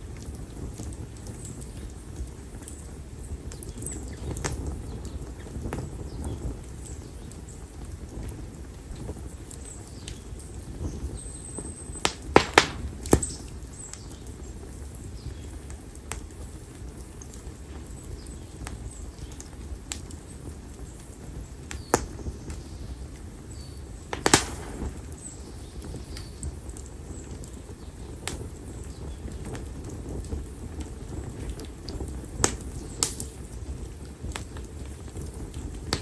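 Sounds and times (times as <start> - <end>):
bonfire crackling: 0.0 - 36.0
loud wood pops: 12.0 - 13.5, 24.1 - 25.3, 32.4 - 33.4.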